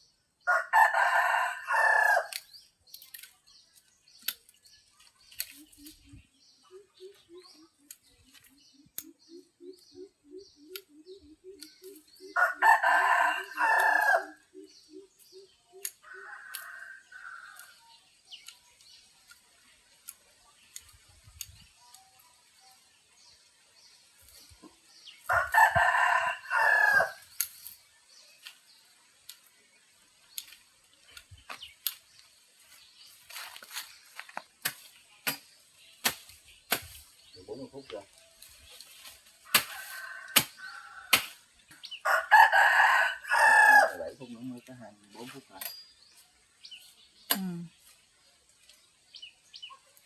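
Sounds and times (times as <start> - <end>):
rooster crowing: 0.5 - 2.4, 12.4 - 14.4, 16.0 - 17.7, 25.3 - 27.2, 39.7 - 41.2, 42.0 - 44.1.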